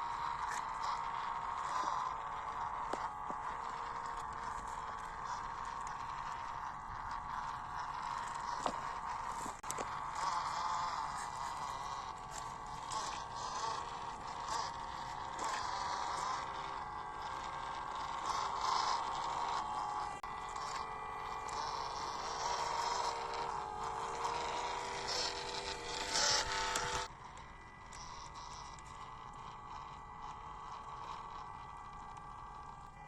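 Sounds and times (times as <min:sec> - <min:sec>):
small electric motors whining: 0:00.0 - 0:33.0
tyres crunching over trail: 0:07.1 - 0:14.6.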